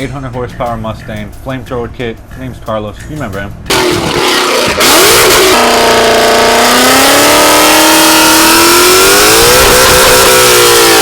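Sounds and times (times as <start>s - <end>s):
car engine revving through loud exhaust: 3.7s - 11.0s.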